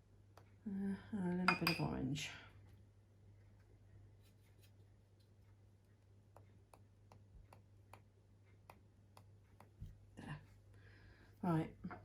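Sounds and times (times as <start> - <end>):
paint brush tapping: 5.9 - 10.1.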